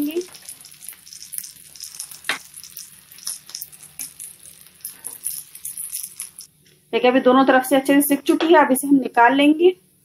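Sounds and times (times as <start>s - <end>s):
patties sizzling in oil: 0.0s - 6.6s.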